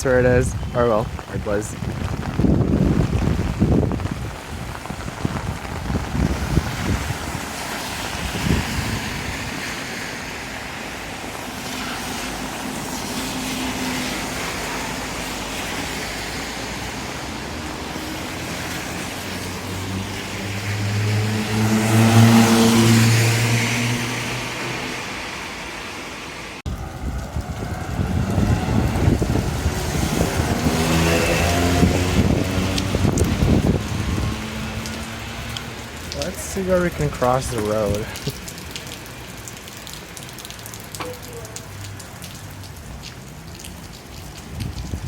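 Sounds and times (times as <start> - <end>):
wind buffeting microphone: 0.0 - 9.8, 26.7 - 38.5, 44.2 - 45.0
wet street hiss: 0.0 - 45.0
car approaching: 12.0 - 39.9.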